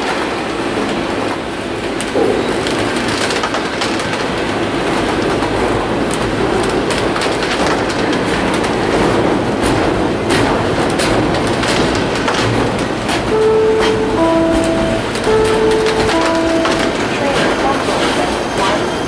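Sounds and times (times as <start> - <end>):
steel wheels rumbling on rail: 0.0 - 19.0.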